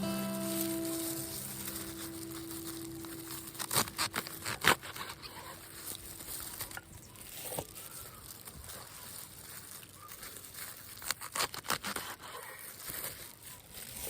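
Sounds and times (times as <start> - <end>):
lingering music note: 0.0 - 6.4
crinkling handling noise: 0.0 - 14.0.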